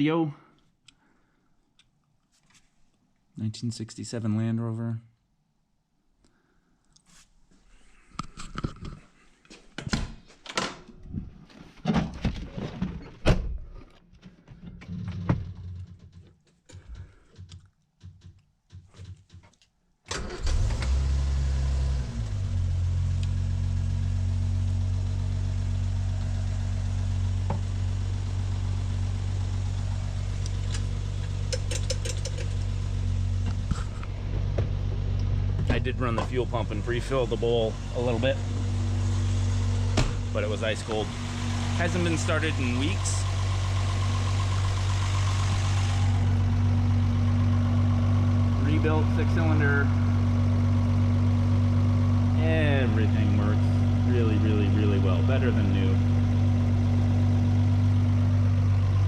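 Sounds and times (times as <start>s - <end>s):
irregular clunks and clicks: 11.9s - 20.2s
engine starting and idling: 20.1s - 34.5s, 35.3s - 56.8s.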